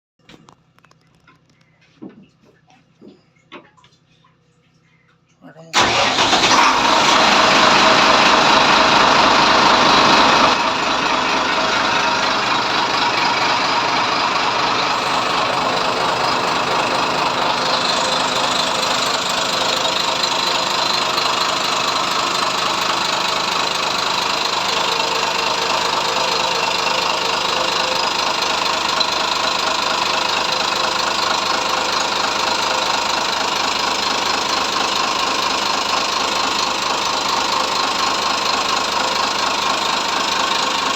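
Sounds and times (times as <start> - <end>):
diesel engine idling: 5.8 - 40.9.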